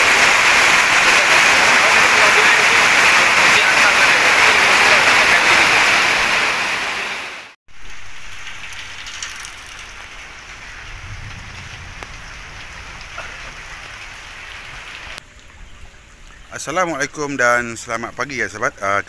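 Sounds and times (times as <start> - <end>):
heavy rain falling: 0.0 - 15.2.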